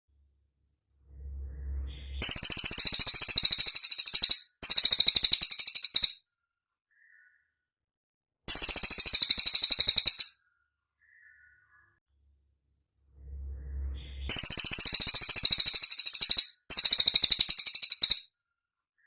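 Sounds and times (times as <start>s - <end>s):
bird trilling chatter: 2.2s - 6.2s, 8.5s - 10.4s, 14.3s - 18.3s.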